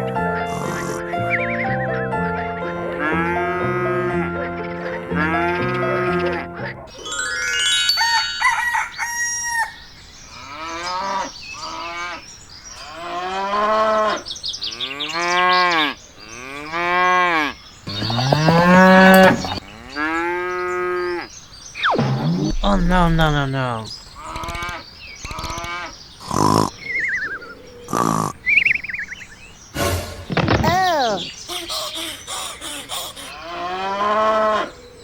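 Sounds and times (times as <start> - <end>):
cow mooing: 14.8 - 21.3, 33.4 - 34.8.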